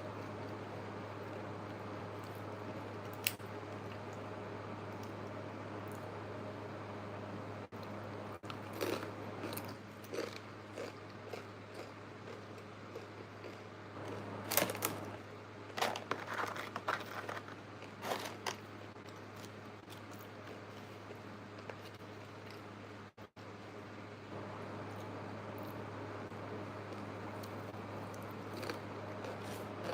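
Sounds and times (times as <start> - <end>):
steady low hum: 0.0 - 29.9
crunching and chewing food: 7.7 - 23.1, 26.6 - 29.9.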